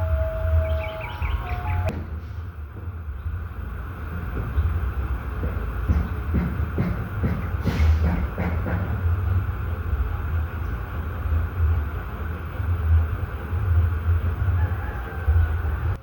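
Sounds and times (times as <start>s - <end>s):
steady low rumble: 0.0s - 7.3s.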